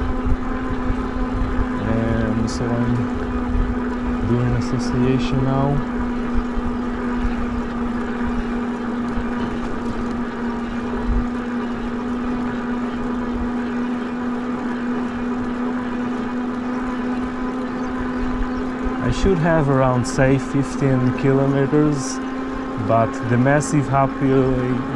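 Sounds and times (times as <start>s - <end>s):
electric motor whine: 0.0s - 24.9s.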